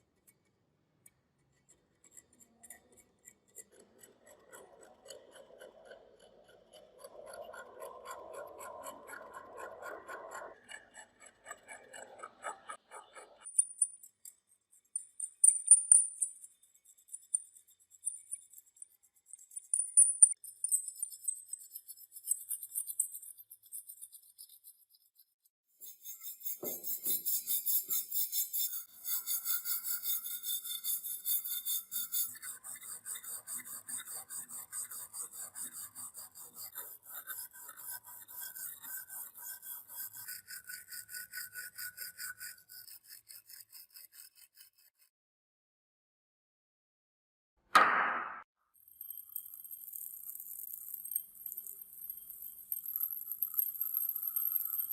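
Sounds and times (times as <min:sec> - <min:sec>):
filing rusty metal: 0:01.4 - 0:45.1.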